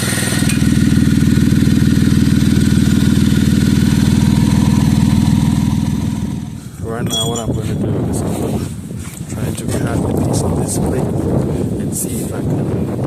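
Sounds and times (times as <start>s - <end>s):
low pulsing exhaust: 0.0s - 12.0s
car engine idling: 0.7s - 6.7s.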